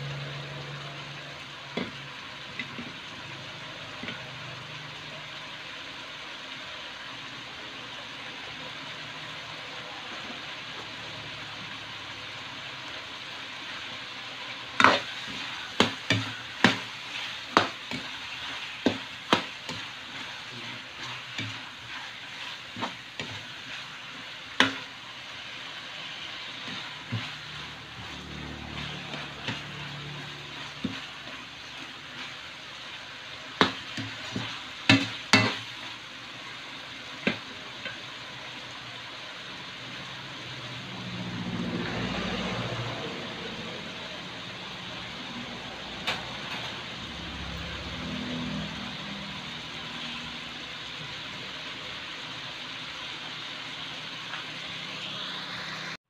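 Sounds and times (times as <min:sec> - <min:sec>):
food sizzling in a wok: 0:00.0 - 0:56.0
spatula clacking against pan: 0:14.8 - 0:20.3, 0:24.6 - 0:24.9, 0:33.6 - 0:35.6.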